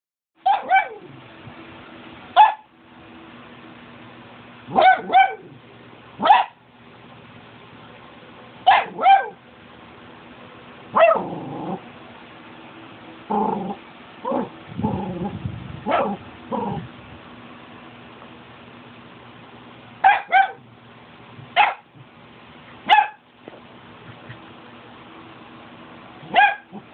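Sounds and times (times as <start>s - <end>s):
dog barking: 0.4s - 1.1s, 2.4s - 2.7s, 4.7s - 5.6s, 6.2s - 6.6s, 8.6s - 9.4s, 10.9s - 11.3s, 15.8s - 16.2s, 20.0s - 20.6s, 21.6s - 21.9s, 22.8s - 23.2s, 26.2s - 26.9s.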